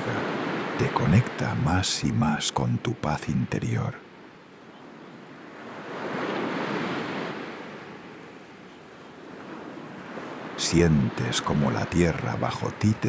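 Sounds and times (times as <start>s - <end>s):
sea wave breaking on shore: 5.4s - 8.4s.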